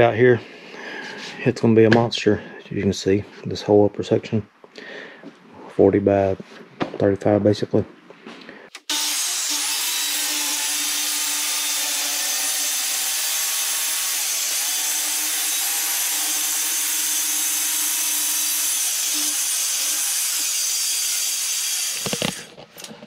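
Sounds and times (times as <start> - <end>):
power saw cutting wood: 8.8 - 22.6.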